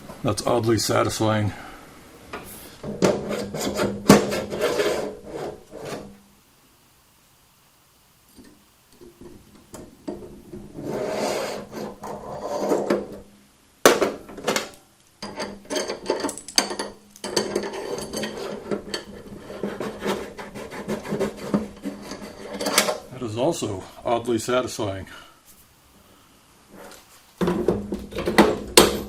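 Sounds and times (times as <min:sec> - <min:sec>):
metal parts scraping: 0:02.9 - 0:06.1, 0:14.3 - 0:23.1.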